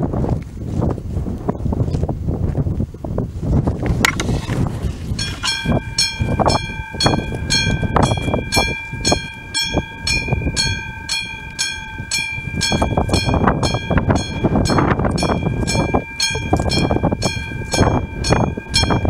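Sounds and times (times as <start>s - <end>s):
low rumbling noise: 0.0s - 19.0s
wind on microphone: 0.0s - 19.0s
level-crossing warning bell: 5.2s - 19.0s.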